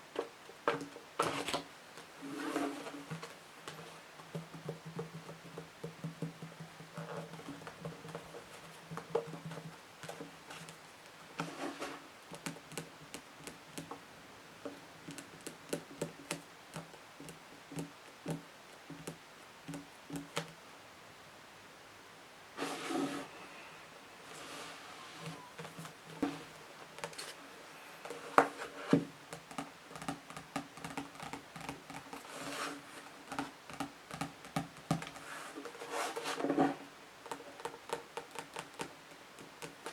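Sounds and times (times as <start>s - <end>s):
fingernails tapping on books: 3.0s - 10.8s, 12.3s - 14.0s, 14.6s - 20.6s, 28.0s - 35.2s, 37.3s - 39.9s.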